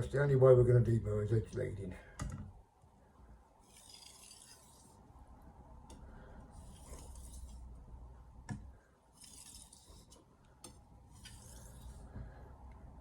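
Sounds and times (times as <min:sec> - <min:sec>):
blade scraping on whetstone: 0:03.6 - 0:05.0, 0:06.5 - 0:07.7, 0:09.1 - 0:10.2, 0:11.1 - 0:12.1.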